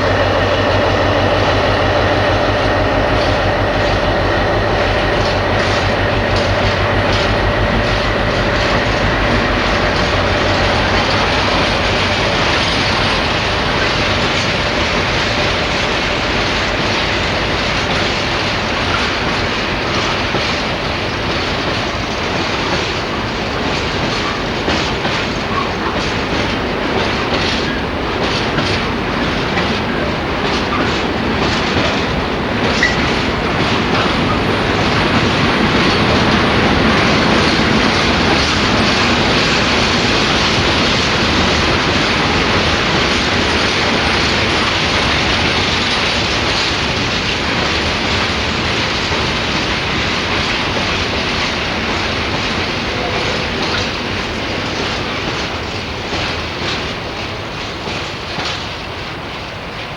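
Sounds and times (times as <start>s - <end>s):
train wheels clattering over rails: 0.0s - 59.9s.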